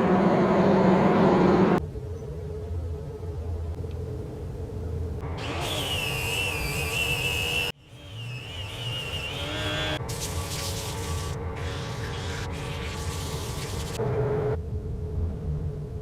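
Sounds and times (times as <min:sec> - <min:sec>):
power tool cutting wood: 0:05.2 - 0:10.6.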